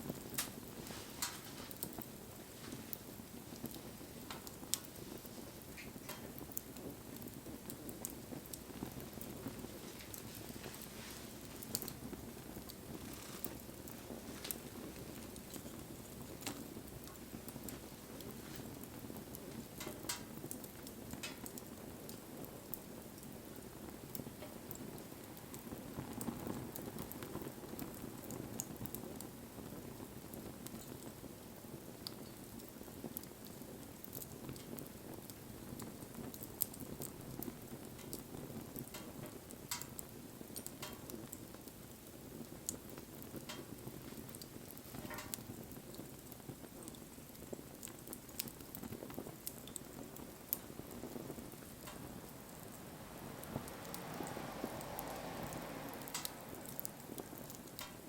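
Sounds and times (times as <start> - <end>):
campfire crackling and popping: 0.0 - 58.0
low rustle of flame: 0.0 - 58.0.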